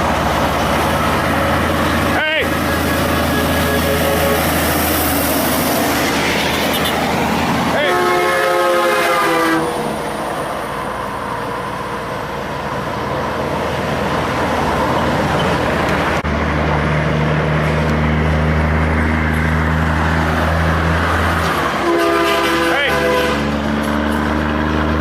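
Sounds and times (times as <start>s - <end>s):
diesel truck engine droning: 0.0s - 25.0s
truck traffic noise: 0.0s - 25.0s
truck air horn: 2.4s - 4.9s, 7.7s - 10.1s, 21.7s - 23.6s.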